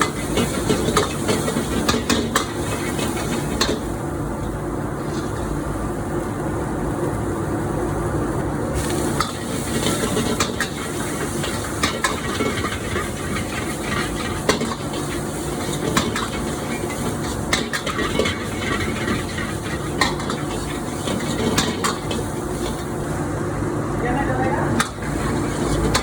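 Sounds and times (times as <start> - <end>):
food sizzling in a pan: 0.0 - 8.1, 8.7 - 23.3, 24.2 - 26.0
spatula scraping a pan: 9.7 - 22.7, 25.0 - 26.0.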